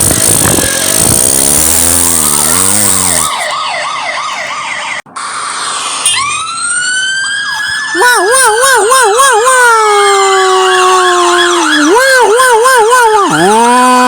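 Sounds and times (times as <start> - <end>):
police siren wailing: 3.0 - 14.0.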